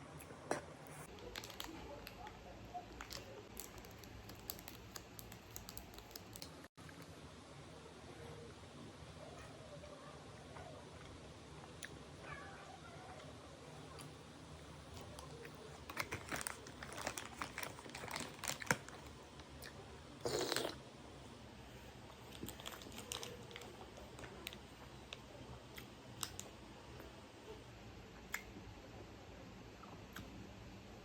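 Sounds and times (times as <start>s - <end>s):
chewing noodles: 15.0s - 20.8s.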